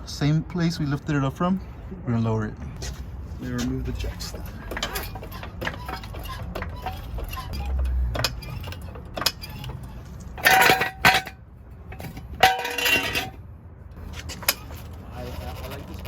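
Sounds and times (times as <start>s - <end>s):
metal jack clanking and rattling: 4.2s - 13.4s
loud ringing metal clangs: 10.4s - 11.4s, 12.4s - 13.4s.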